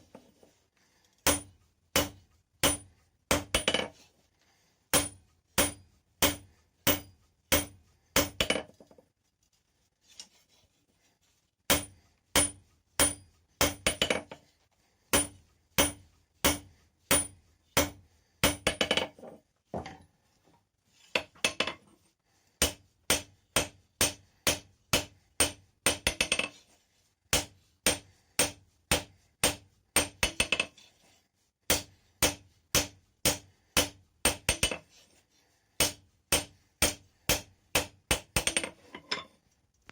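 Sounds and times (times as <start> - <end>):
hammer striking metal on anvil: 1.2 - 3.9, 4.9 - 8.6, 11.7 - 14.2, 15.1 - 19.0, 22.6 - 26.5, 27.3 - 30.7, 31.7 - 34.8, 35.8 - 38.7.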